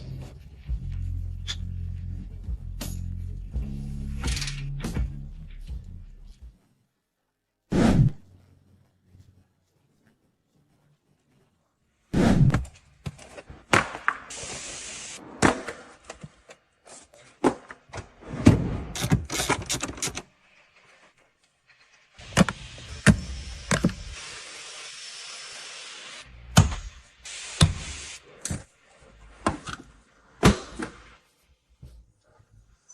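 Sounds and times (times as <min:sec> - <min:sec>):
steady hiss: 0:14.3 - 0:15.2, 0:22.2 - 0:26.4, 0:27.0 - 0:28.4.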